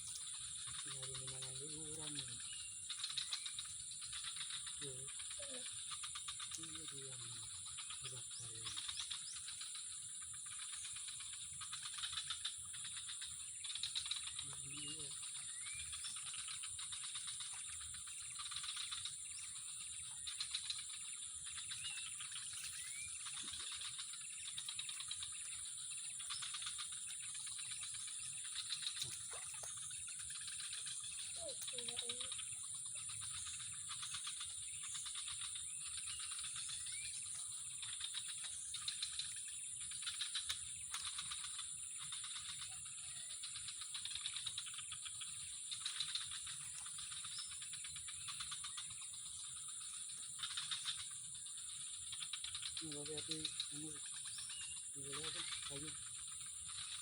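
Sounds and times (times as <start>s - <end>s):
high-pitched insect drone: 0.0s - 57.0s
rising bird chirps: 21.4s - 32.9s.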